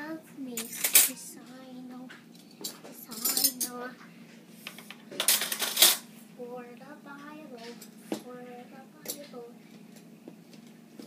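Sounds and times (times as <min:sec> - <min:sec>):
metal cutlery clinking: 0:00.6 - 0:01.2, 0:02.6 - 0:03.8, 0:05.2 - 0:06.0.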